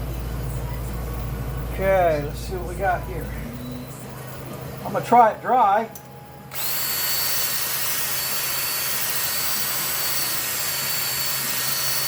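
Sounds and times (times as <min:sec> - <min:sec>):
power hone whining: 0:01.6 - 0:12.0.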